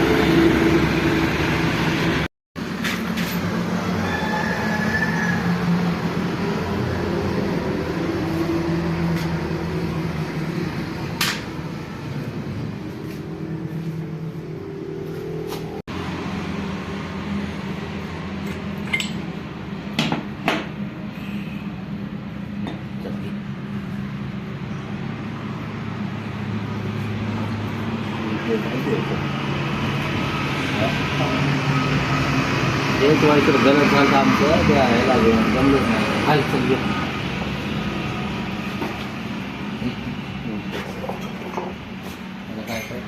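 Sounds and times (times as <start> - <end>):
low engine drone: 0.0 - 43.0
sharp metallic clinks: 18.4 - 19.3.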